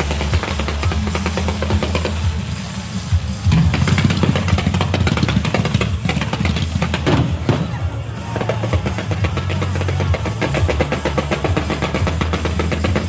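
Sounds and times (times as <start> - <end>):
firecrackers crackling: 0.0 - 13.0
music: 0.0 - 13.0.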